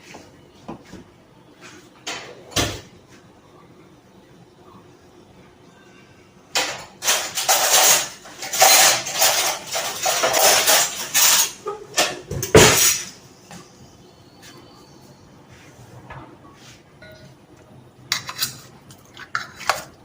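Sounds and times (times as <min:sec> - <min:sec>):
spoon and dishes clattering: 0:06.5 - 0:13.2, 0:17.0 - 0:17.4, 0:18.1 - 0:20.0.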